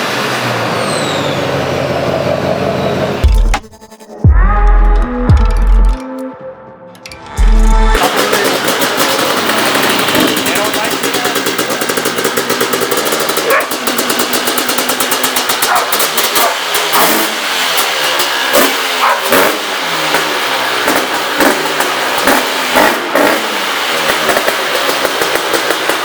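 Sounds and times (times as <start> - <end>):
sharp exhaust cracks: 7.0 - 26.0
dirt bike engine revving: 7.3 - 26.0.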